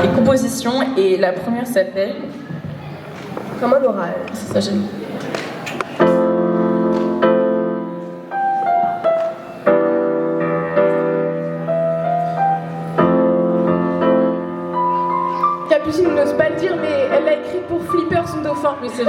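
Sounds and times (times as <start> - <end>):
slow piano chords and melody: 6.0 - 19.0.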